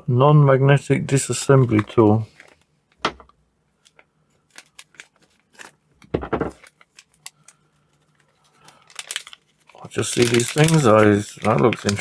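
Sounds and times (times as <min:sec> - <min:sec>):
plastic packet rustling: 0:03.8 - 0:05.8, 0:06.4 - 0:12.0.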